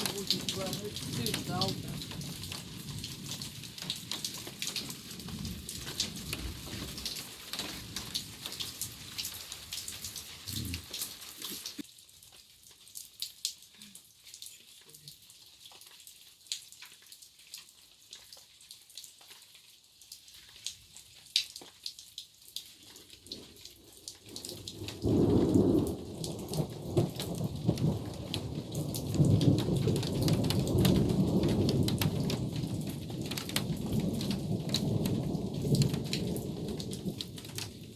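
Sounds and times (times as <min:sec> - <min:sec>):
thunder rumbling: 0:00.0 - 0:04.1, 0:24.7 - 0:37.9
rain pattering: 0:00.0 - 0:37.9.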